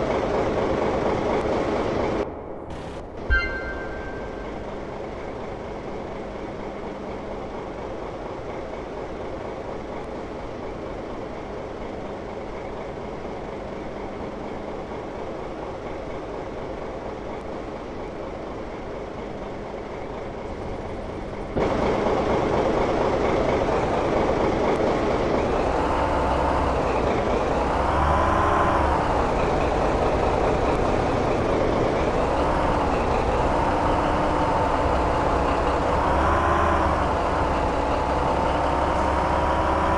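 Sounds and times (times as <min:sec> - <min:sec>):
locomotive engine revving: 0:21.6 - 0:39.9.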